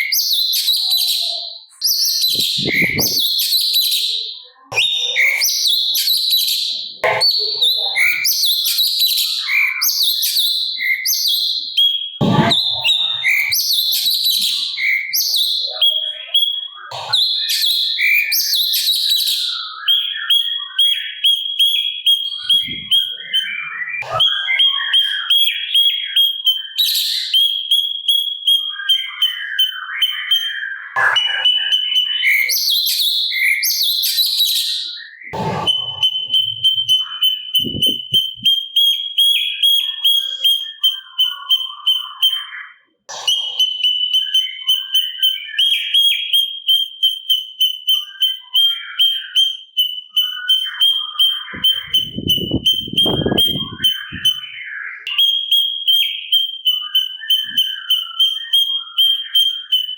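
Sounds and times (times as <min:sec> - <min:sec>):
songbird singing: 0:00.0 - 0:59.9
sharp knocks: 0:12.2 - 0:12.9.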